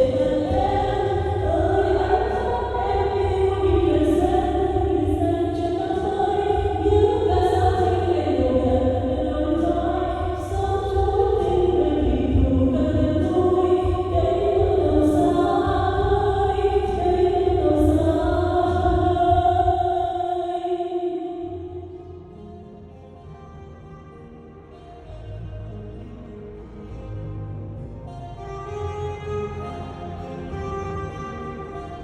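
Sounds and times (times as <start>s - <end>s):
steady low rumble: 0.0s - 20.3s
choir singing slow song: 0.0s - 22.1s.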